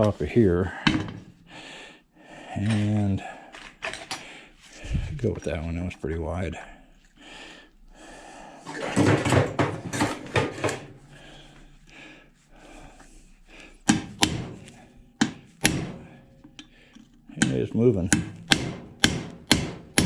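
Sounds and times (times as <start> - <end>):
hammer striking metal punch: 13.9 - 16.1, 17.4 - 20.0.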